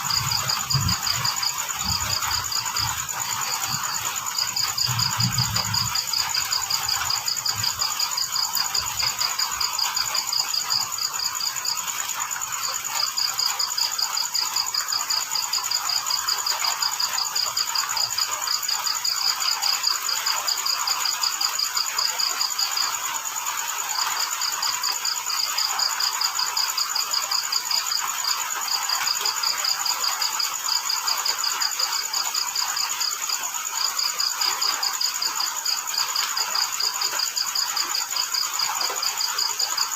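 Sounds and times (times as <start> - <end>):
rain hissing: 0.0 - 26.6
crickets chirping: 0.0 - 39.9
insect trill: 0.0 - 39.9.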